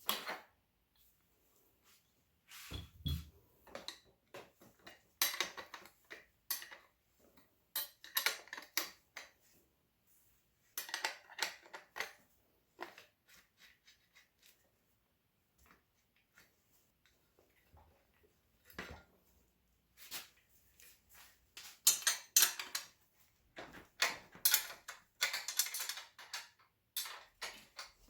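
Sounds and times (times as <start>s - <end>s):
metal parts and tools clinking: 21.7s - 22.9s, 24.0s - 28.0s.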